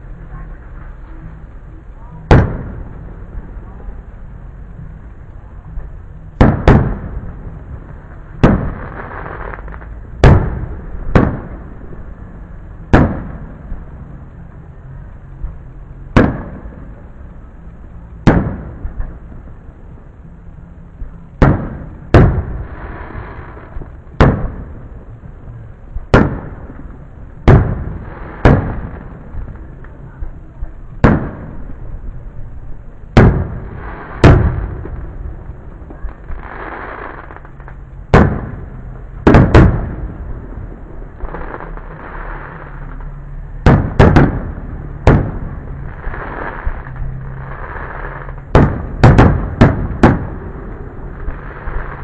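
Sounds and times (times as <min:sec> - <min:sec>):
firework hissing crackle: 0:06.4 - 0:14.8, 0:21.4 - 0:32.5, 0:33.1 - 0:52.0.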